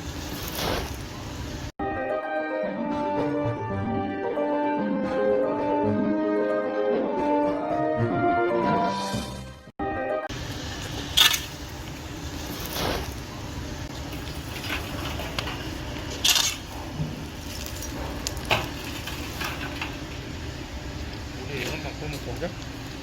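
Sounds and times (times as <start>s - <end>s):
steady low rumble: 10.3s - 23.0s.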